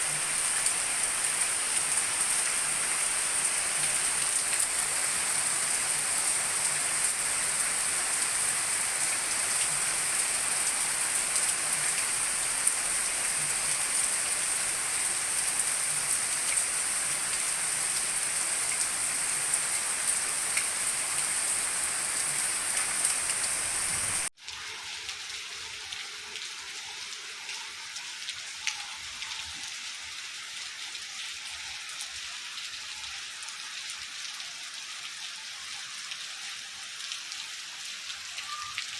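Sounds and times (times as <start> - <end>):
heavy rain hissing: 0.0 - 24.3
rain patter and drops: 0.0 - 38.9.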